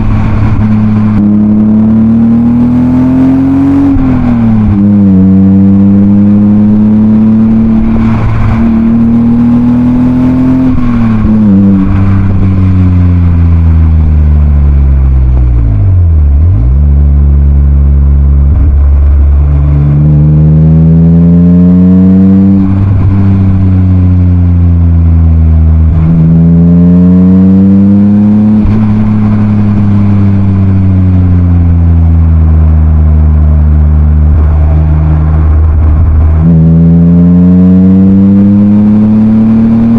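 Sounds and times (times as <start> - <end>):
car engine revving through gears: 0.0 - 39.9.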